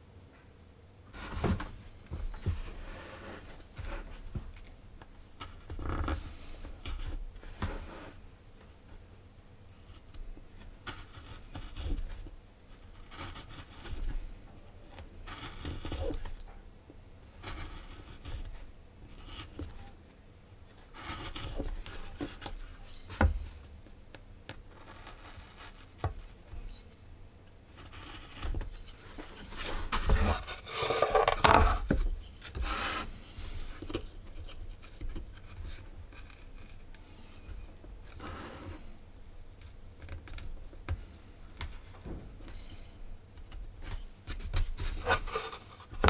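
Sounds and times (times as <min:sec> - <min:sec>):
wood rubbing and scraping: 0:27.8 - 0:38.9, 0:43.9 - 0:46.0.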